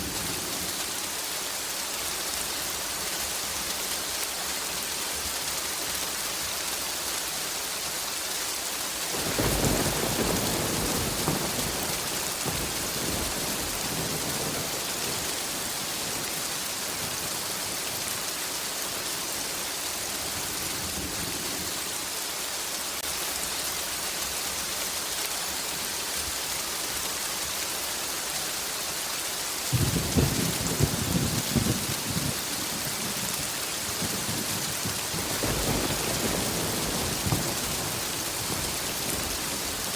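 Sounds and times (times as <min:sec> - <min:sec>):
heavy rain hissing: 0:00.0 - 0:39.9
thunder rumbling: 0:09.2 - 0:17.7, 0:29.7 - 0:39.9.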